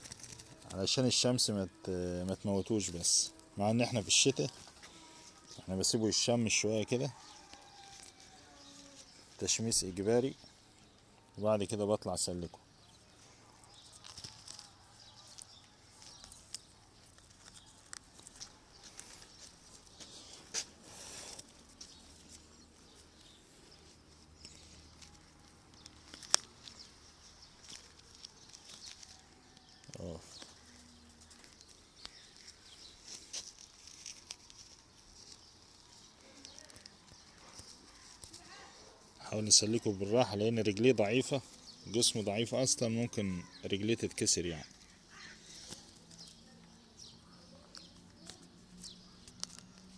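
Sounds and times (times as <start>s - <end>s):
faint bird chirping: 0.0s - 49.9s
light clicks and rustles: 13.1s - 39.2s, 44.7s - 49.9s.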